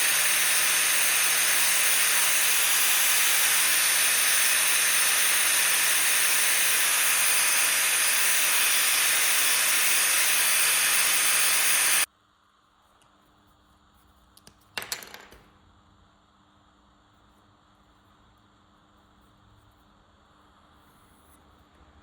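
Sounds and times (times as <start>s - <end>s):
loud steady hiss: 0.0s - 12.1s.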